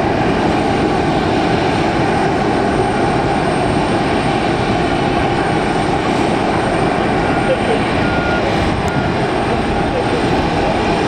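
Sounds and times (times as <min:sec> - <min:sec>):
airliner engines rushing: 0:00.0 - 0:11.0.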